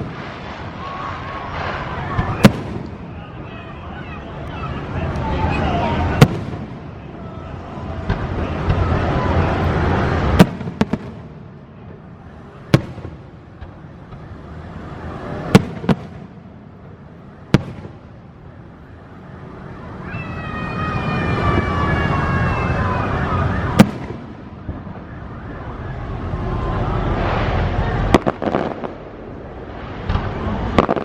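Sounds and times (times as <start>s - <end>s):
fireworks booming: 0.0s - 31.0s
steady rushing noise: 0.0s - 31.0s.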